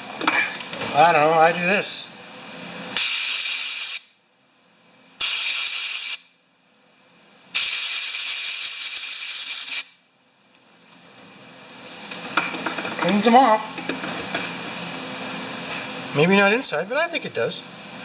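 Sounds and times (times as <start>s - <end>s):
compressed air blasts: 3.0s - 4.1s, 5.2s - 6.2s, 7.6s - 10.0s.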